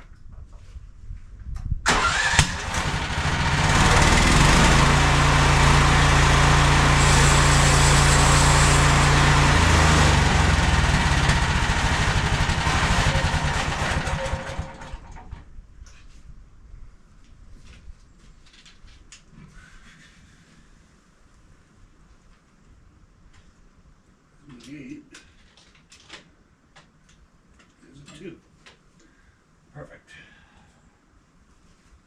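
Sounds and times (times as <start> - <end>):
sawmill gasoline engine running: 1.9 - 15.4.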